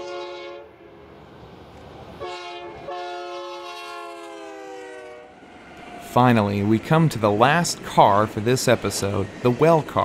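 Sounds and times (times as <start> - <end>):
locomotive air horn blasts: 0.0 - 1.0, 2.2 - 5.4.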